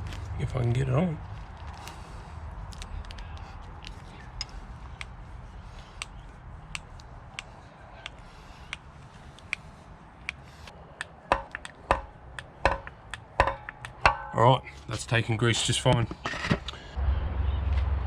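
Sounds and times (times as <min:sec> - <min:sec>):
metal knocks: 0:11.3 - 0:14.5.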